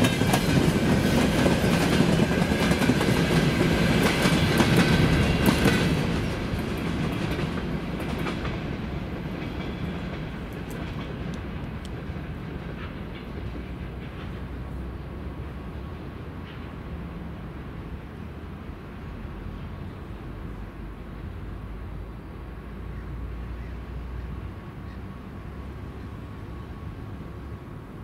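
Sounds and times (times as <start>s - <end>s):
train wheels clattering on rails: 0.0s - 17.9s.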